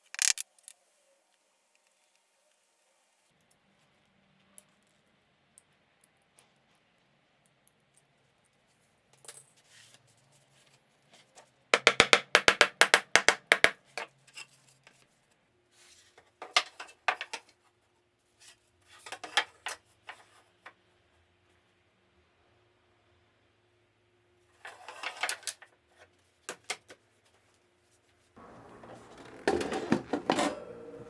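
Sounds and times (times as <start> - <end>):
wooden pieces knocking together: 0.0 - 0.7, 11.8 - 13.8.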